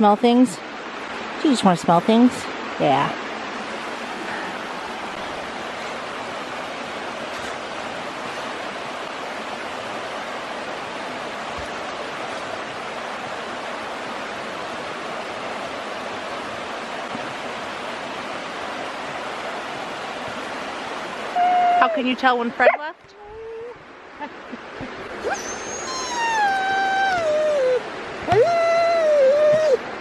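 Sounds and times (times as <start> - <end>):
waterfall rushing: 0.6 - 30.0.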